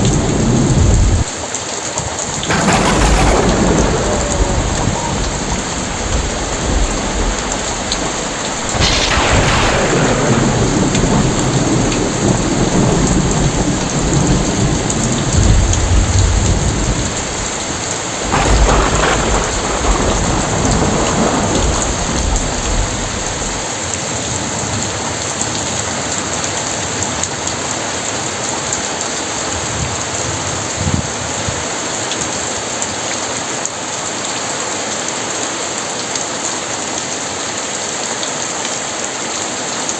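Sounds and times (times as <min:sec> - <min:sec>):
thunder claps with low rumble: 0:00.0 - 0:01.4, 0:02.0 - 0:28.7
heavy rain falling: 0:00.0 - 0:39.9.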